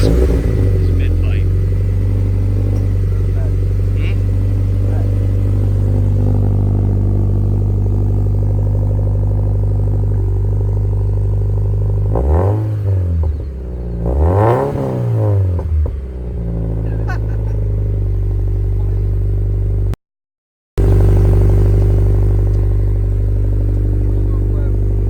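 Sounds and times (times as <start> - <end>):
car engine idling and revving: 0.0 - 20.0, 20.8 - 25.0.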